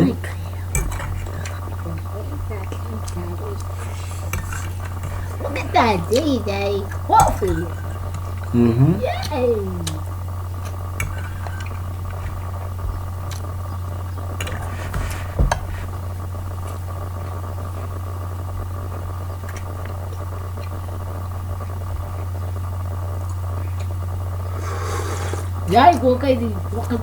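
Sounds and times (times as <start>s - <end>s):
steady low hum: 0.0s - 27.0s
cutlery and dishes clinking: 0.8s - 1.6s.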